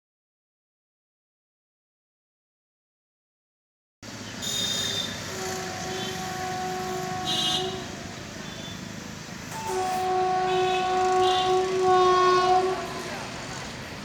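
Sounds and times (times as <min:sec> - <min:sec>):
traffic hum: 0:04.0 - 0:14.0
short high horn toots: 0:04.4 - 0:08.9, 0:09.5 - 0:13.6
train horn long note: 0:04.4 - 0:14.0.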